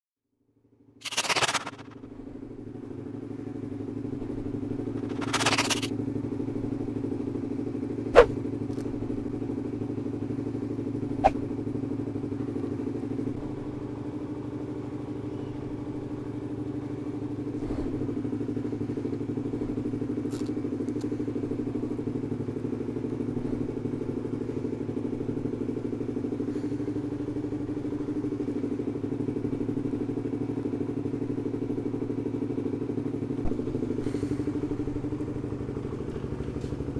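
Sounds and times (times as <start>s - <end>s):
motorcycle engine running: 0.6s - 36.9s
sharp clicks: 1.0s - 2.0s, 5.0s - 5.9s.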